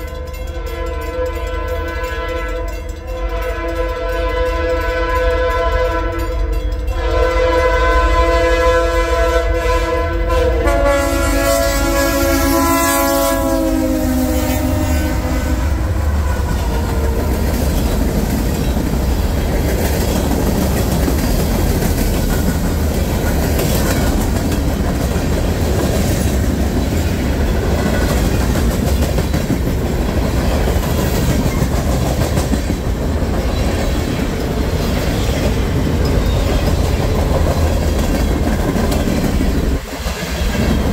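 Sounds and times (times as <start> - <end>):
train air horn: 0.0 - 17.6
freight train rumbling past: 0.0 - 40.9
wheels clacking on rail joints: 15.2 - 40.9.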